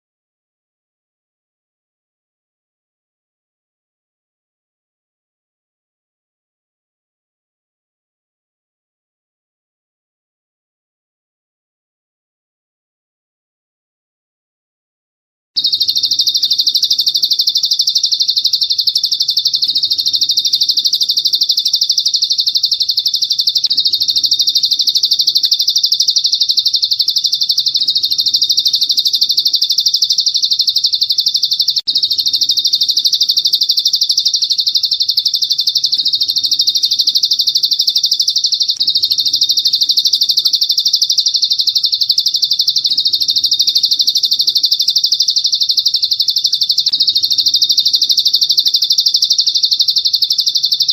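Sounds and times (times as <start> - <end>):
rapid high bird trill: 15.6 - 50.9.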